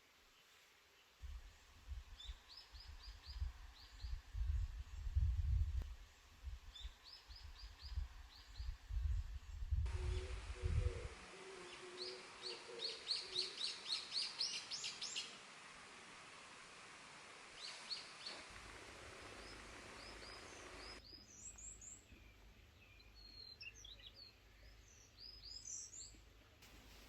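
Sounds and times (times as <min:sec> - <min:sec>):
small songbirds chirping: 0:00.2 - 0:27.0
lower wavering bird call: 0:09.9 - 0:15.4.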